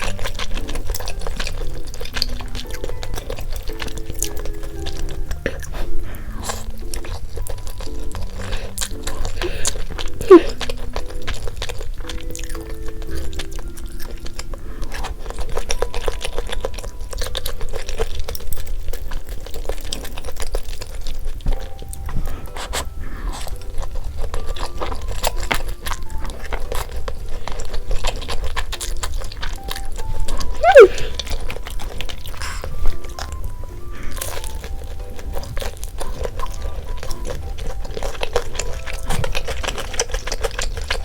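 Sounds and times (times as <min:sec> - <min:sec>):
crunchy chewing of fried food: 0:00.0 - 0:41.0
light background music: 0:00.0 - 0:41.0
swooping tone: 0:30.6 - 0:31.2.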